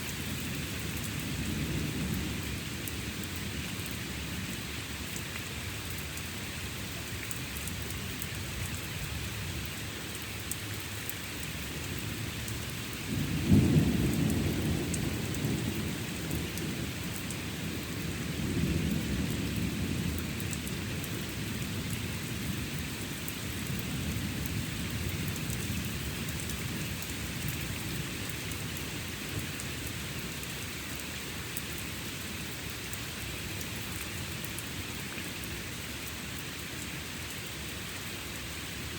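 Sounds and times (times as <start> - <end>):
steady rain: 0.0 - 38.9
thunder rumbling: 13.1 - 16.9.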